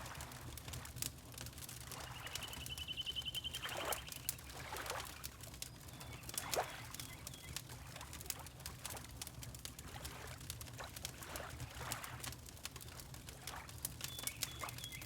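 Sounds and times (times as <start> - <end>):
water lapping softly: 0.0 - 15.0
bird high trill: 2.3 - 4.2.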